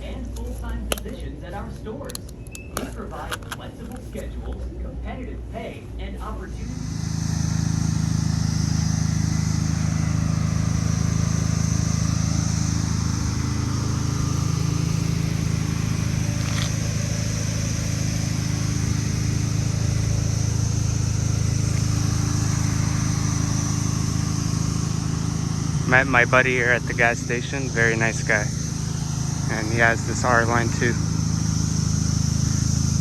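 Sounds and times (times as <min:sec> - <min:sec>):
car engine idling: 0:00.0 - 0:33.0
sharp click: 0:00.4 - 0:01.2.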